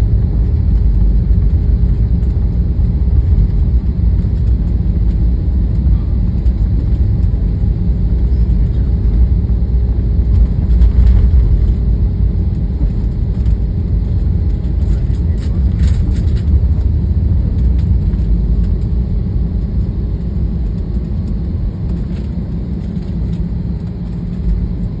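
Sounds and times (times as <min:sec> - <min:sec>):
airliner cabin engine rumble: 0:00.0 - 0:25.0.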